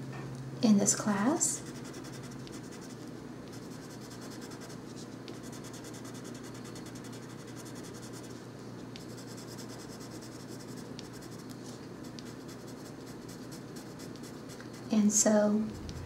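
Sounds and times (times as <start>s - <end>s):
steady low hum: 0.0s - 16.0s
pencil scratching on paper: 1.6s - 8.4s, 9.0s - 14.9s.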